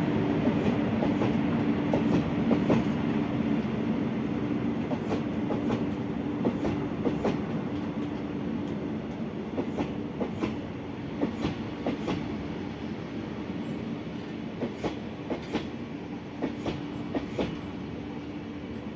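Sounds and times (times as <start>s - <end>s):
freight train rumble: 0.0s - 18.9s
train wheels clicking over joints: 0.4s - 3.0s, 4.9s - 10.6s, 11.2s - 12.4s, 14.1s - 15.8s, 16.4s - 17.8s.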